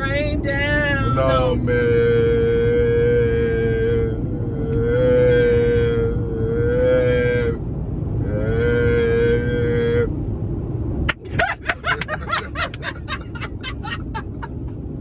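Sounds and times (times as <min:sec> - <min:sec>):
car road rumble: 0:00.0 - 0:15.0
people laughing: 0:11.2 - 0:14.7.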